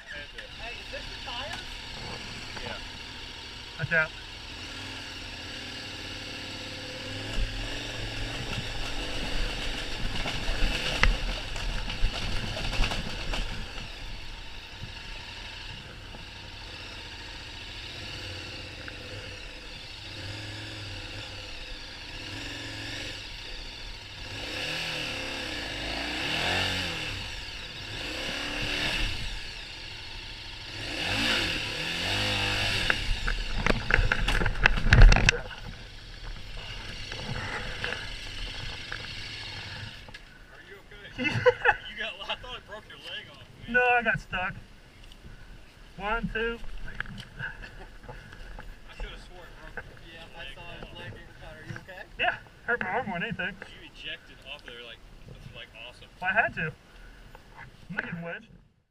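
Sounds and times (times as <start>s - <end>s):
motorcycle engine revving: 0.0s - 58.3s.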